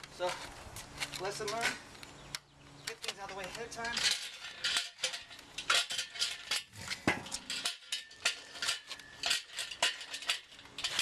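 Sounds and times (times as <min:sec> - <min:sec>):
metal parts clinking: 0:02.8 - 0:11.0.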